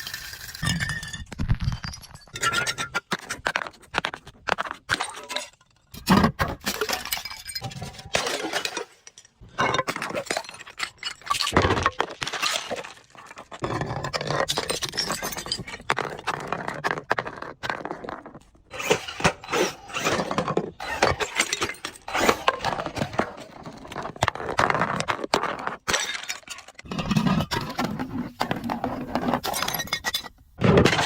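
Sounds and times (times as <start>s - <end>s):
glass bottles breaking and crushing: 0.0s - 3.2s, 4.9s - 13.2s, 14.4s - 15.9s, 20.8s - 23.2s, 25.9s - 27.8s, 28.7s - 31.0s.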